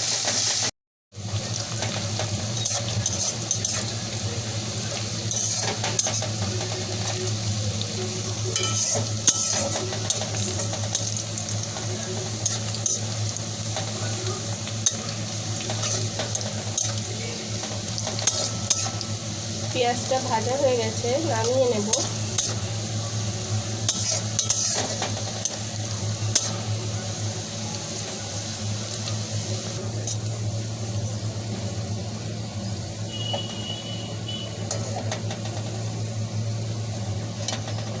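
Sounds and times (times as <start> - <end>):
onions sizzling in a pan: 0.0 - 38.0
spatula scraping a pan: 1.8 - 4.0, 5.3 - 7.2, 8.6 - 11.3, 23.9 - 25.6.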